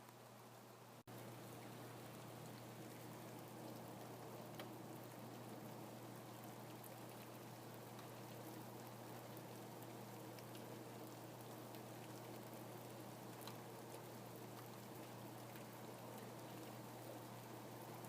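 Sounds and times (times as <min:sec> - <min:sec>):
faint rain with drops ticking: 0:00.0 - 0:18.0
low steady hum: 0:00.0 - 0:18.0.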